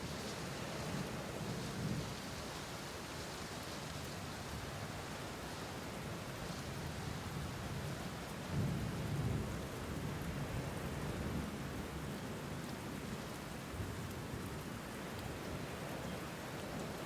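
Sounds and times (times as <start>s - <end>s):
steady rain falling: 0.0s - 17.0s
low rumble of thunder: 8.5s - 11.5s.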